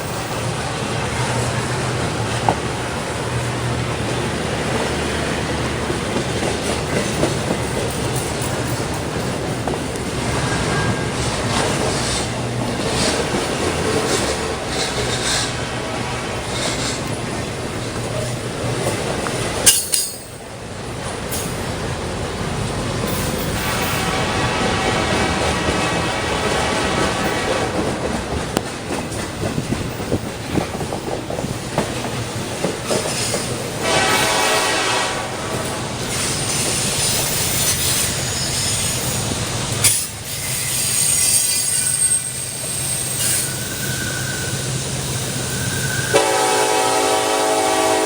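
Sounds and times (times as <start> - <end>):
wheels clacking over track: 0.0 - 40.6
freight train rumbling past: 0.0 - 48.0
sharp metallic clink: 19.6 - 20.4.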